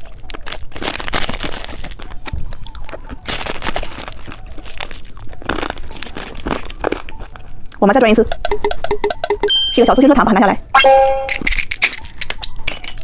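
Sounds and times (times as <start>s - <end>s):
candy crunching: 0.0s - 8.2s
popping candy crackling: 0.0s - 9.3s.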